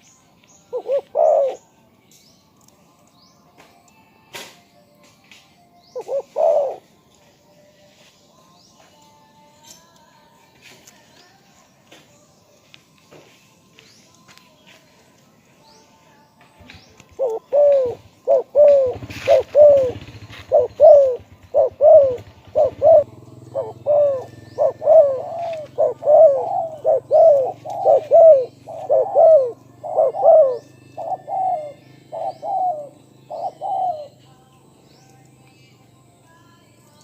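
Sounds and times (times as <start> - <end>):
dove cooing: 0.7 - 1.6, 5.9 - 7.0, 17.1 - 34.2.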